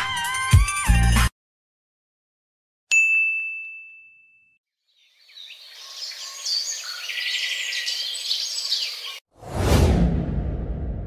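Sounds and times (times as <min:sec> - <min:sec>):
birds chirping and singing: 0:04.9 - 0:09.2.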